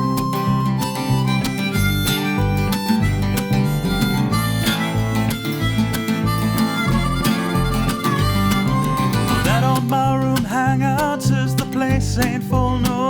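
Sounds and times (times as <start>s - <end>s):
harmonica melody: 0.0s - 10.4s
bass line: 0.0s - 13.0s
strummed acoustic guitar: 0.0s - 13.0s.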